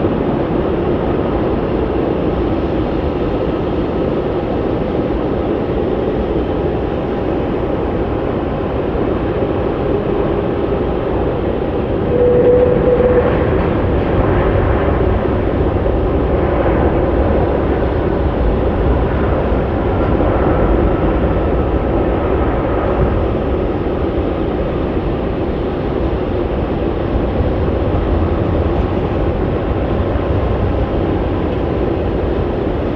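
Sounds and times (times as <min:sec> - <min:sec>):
jet engines rumbling: 0:03.9 - 0:32.9
faint engine whine: 0:07.4 - 0:32.9.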